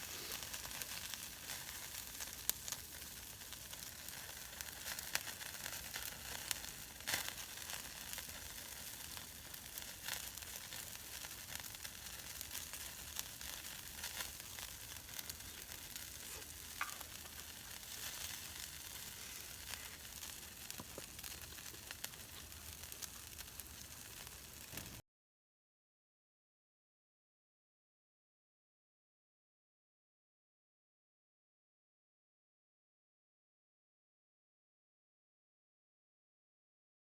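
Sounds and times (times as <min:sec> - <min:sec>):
food sizzling in a pan: 0:00.0 - 0:25.0.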